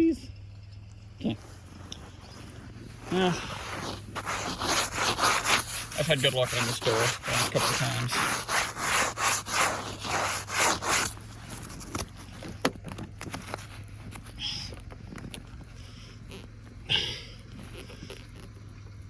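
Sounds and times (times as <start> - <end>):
rhythmic crunching scrapes: 1.4 - 12.4.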